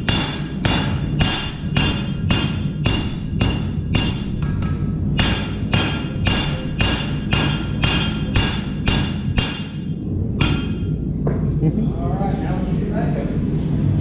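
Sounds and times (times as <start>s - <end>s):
hammer striking steel on anvil: 0.0s - 11.0s.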